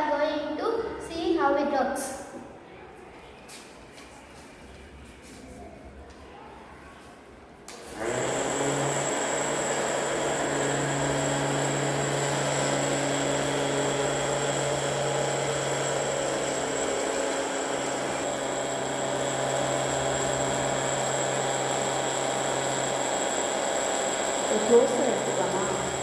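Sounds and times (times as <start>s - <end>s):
small electric motor humming: 8.0s - 26.0s.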